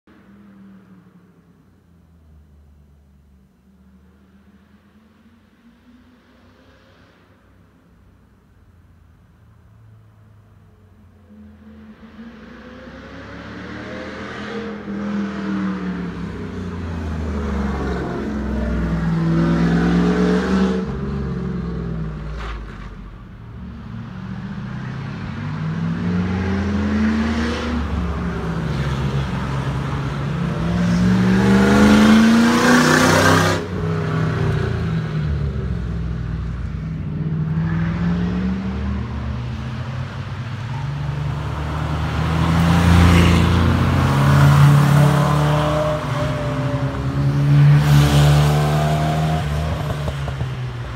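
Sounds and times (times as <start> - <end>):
car engine accelerating: 24.4 - 50.9.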